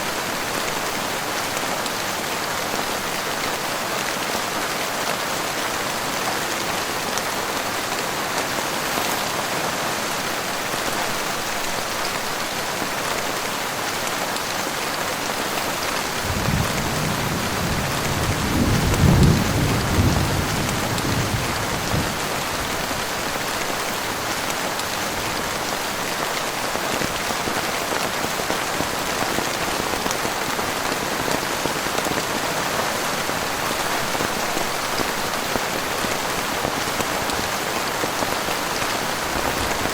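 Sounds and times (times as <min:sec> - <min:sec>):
heavy rain falling: 0:00.0 - 0:39.9
thunder rumbling: 0:16.2 - 0:22.6.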